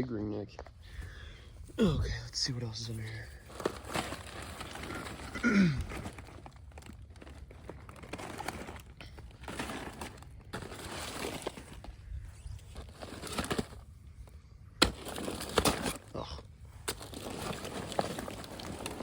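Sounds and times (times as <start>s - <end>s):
dry debris rustling and crinkling: 0.8s - 19.0s.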